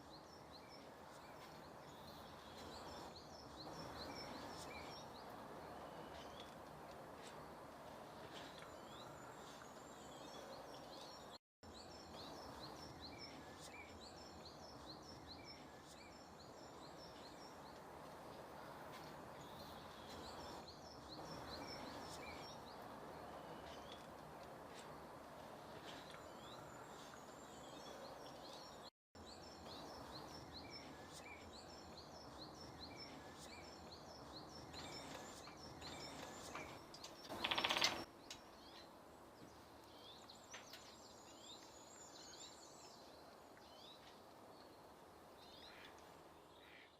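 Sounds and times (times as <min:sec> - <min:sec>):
songbirds singing: 0:00.0 - 0:46.9
woodpecker drumming on wood: 0:34.9 - 0:38.1.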